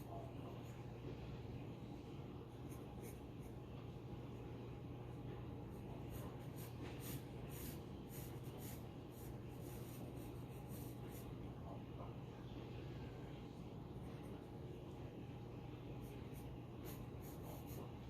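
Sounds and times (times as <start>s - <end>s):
low steady hum: 0.0s - 18.0s
pencil scratching on paper: 2.5s - 3.7s, 5.6s - 11.4s, 16.0s - 18.0s.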